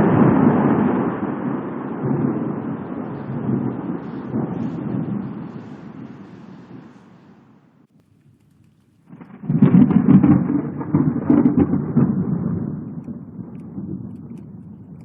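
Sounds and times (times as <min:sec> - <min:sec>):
thunderclap and rumble: 0:00.0 - 0:15.0.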